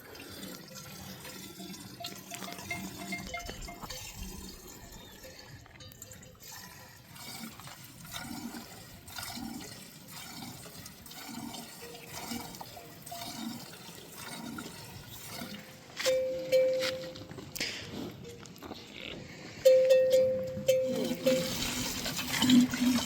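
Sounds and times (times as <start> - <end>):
soft rhythmic pulse: 1.6 - 6.4, 19.6 - 21.8
running and splashing water: 21.1 - 23.0.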